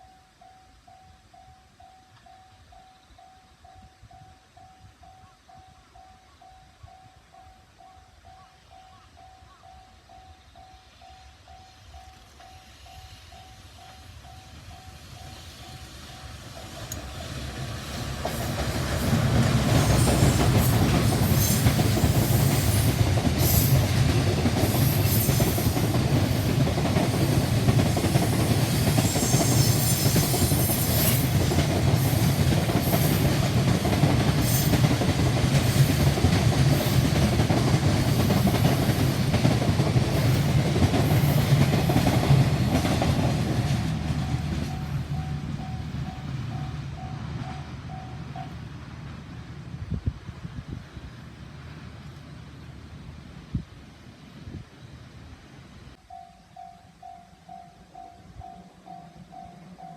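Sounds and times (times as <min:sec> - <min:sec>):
electric train passing: 0:00.0 - 0:59.9
level crossing warning bell: 0:44.1 - 0:48.6, 0:56.0 - 0:59.9.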